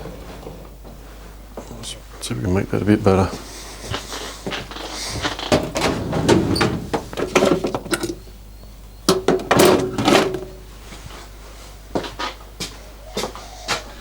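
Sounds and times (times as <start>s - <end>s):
metal tools clunking and rattling: 5.2s - 10.7s.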